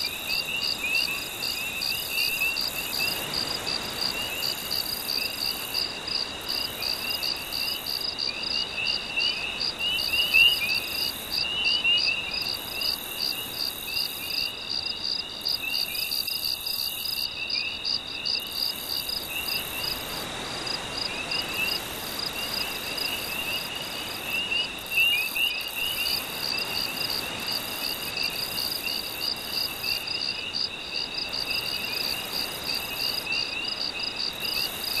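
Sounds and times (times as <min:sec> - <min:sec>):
frogs chirping: 0:00.0 - 0:20.2, 0:21.0 - 0:35.0
insects trilling: 0:00.0 - 0:35.0
gentle sea waves: 0:18.6 - 0:30.1.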